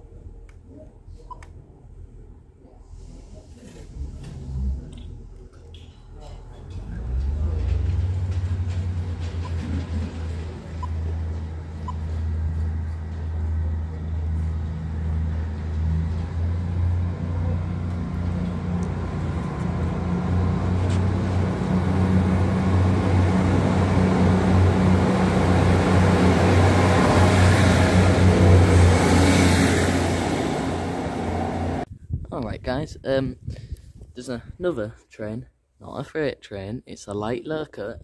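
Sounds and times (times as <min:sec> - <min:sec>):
diesel train engine humming: 0:06.1 - 0:31.9.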